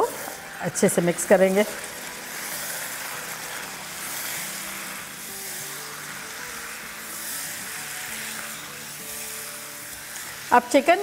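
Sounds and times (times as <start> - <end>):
chicken sizzling in oil: 0.0 - 11.0
soft background music: 0.0 - 11.0
spatula stirring in wok: 0.0 - 11.0.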